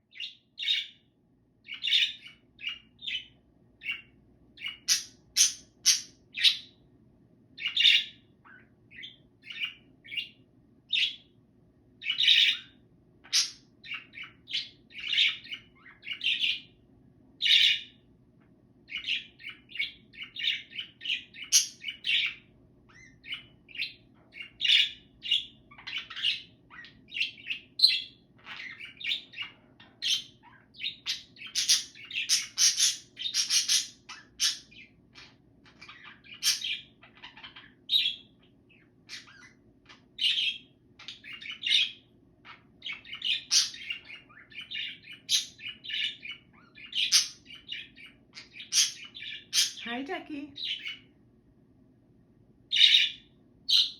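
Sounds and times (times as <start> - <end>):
faint low hum: 0.0 - 53.9
budgerigar chattering: 4.6 - 6.7, 20.4 - 22.3, 27.9 - 34.8, 35.9 - 38.2, 42.9 - 49.9.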